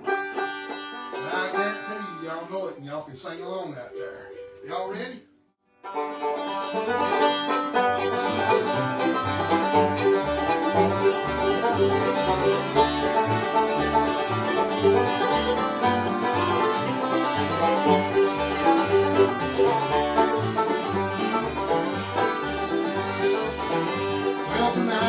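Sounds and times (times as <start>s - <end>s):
guitar: 0.0s - 2.8s, 5.8s - 25.0s
banjo rolls: 0.0s - 5.1s, 5.8s - 25.0s
upright bass walking line: 7.8s - 25.0s.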